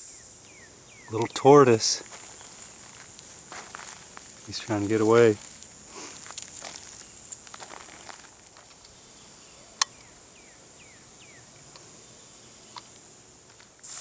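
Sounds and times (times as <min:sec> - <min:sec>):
bird calling: 0:00.0 - 0:06.2
insects buzzing: 0:00.0 - 0:14.0.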